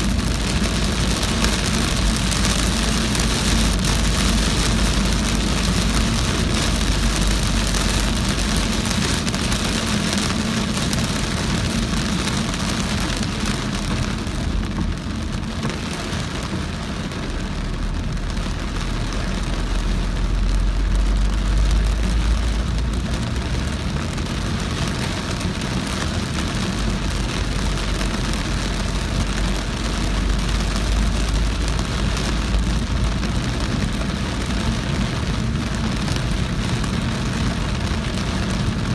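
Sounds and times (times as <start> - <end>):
heavy rain drumming on car: 0.0 - 38.9
low road and engine rumble: 0.0 - 38.9.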